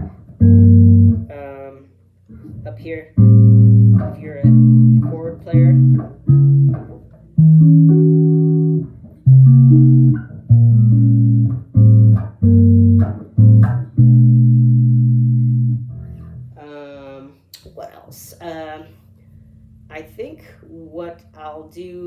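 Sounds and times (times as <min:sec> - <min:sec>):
electric bass chords: 0:00.0 - 0:01.6, 0:02.3 - 0:16.6.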